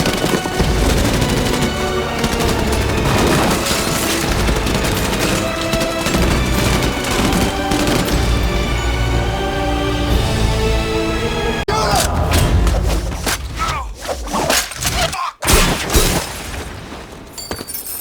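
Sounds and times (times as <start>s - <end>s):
rapid gunfire bursts: 0.0s - 9.0s
dramatic music score: 0.0s - 15.0s.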